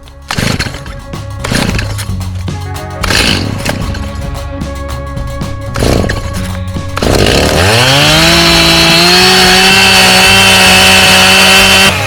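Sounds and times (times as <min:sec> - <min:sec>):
chainsaw revving: 0:00.0 - 0:02.2, 0:03.0 - 0:04.2, 0:05.7 - 0:12.0.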